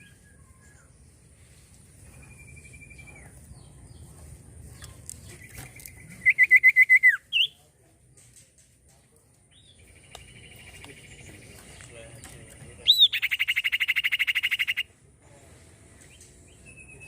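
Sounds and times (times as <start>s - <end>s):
bird singing trilled whistle: 2.3s - 3.3s, 6.1s - 7.6s, 12.8s - 14.8s, 16.5s - 17.0s.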